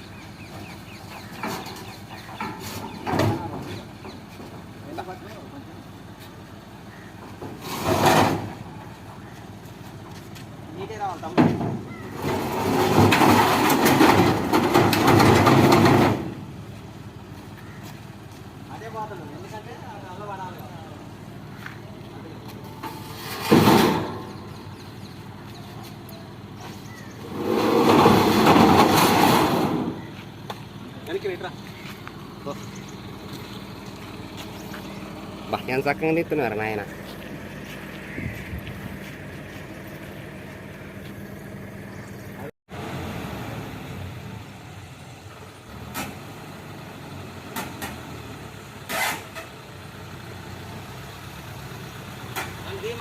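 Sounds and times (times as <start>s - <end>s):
harvester engine running: 20.6s - 42.5s.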